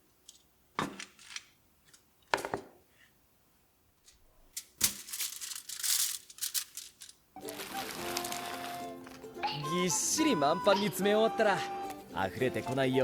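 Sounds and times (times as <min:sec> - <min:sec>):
plastic crinkling: 0:04.8 - 0:09.4.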